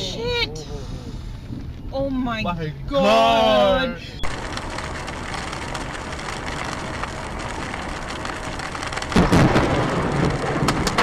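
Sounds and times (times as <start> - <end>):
steady downpour of rain: 4.2 - 11.0
thunder rumbling and cracking: 4.2 - 11.0.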